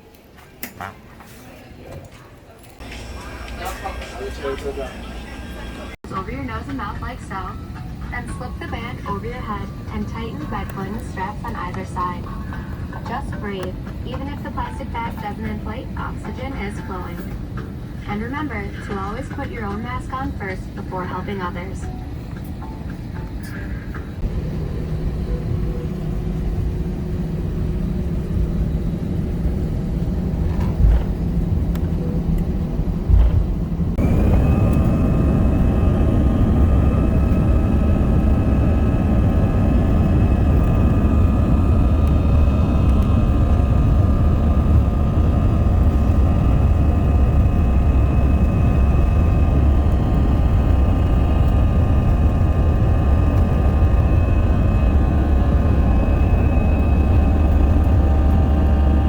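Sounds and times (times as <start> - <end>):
jet engine high whine: 2.8 - 59.0
jet engine rumble: 2.8 - 59.0.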